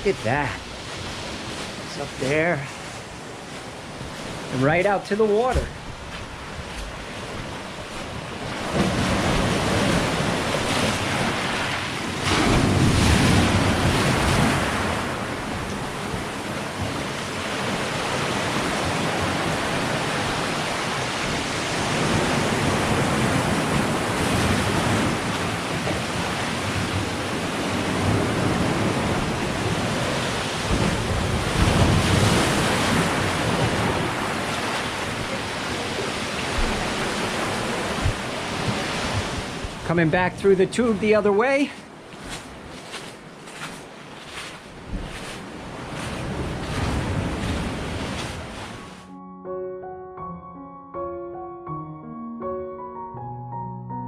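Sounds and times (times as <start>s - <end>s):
ocean surf breaking on shore: 0.0s - 49.1s
wind noise on microphone: 21.2s - 35.4s, 36.0s - 39.9s, 42.3s - 49.0s.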